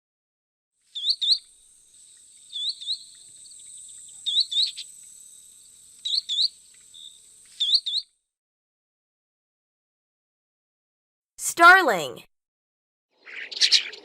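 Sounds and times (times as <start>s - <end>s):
high insect buzz: 0.8s - 8.0s.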